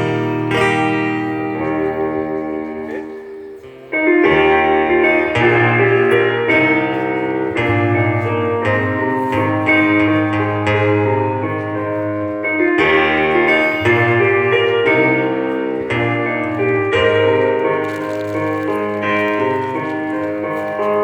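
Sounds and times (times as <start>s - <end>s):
guitar playing: 0.0s - 21.0s
piano chords: 0.0s - 21.0s.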